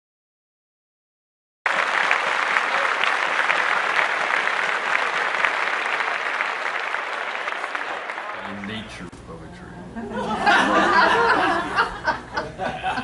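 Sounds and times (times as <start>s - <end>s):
audience applauding: 1.7s - 9.0s.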